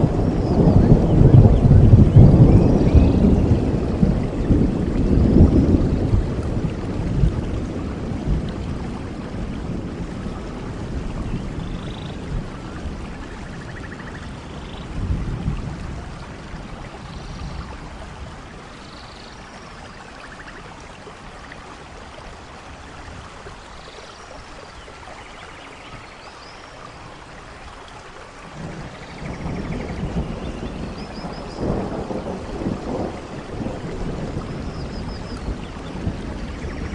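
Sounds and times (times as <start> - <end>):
rolling thunder rumble: 0.0 - 18.8, 28.4 - 36.9
steady rain: 0.0 - 36.9.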